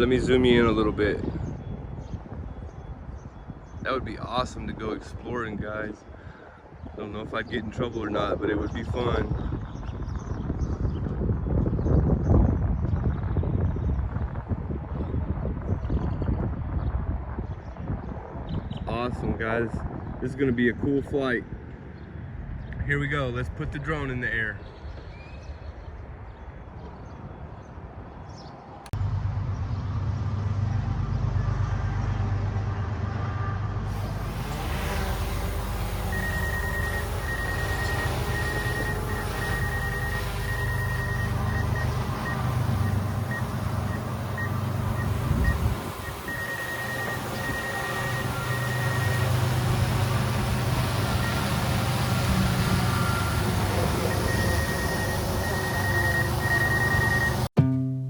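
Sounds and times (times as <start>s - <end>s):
low engine rumble with hiss: 29.0s - 57.5s
drone motors humming: 33.9s - 57.5s.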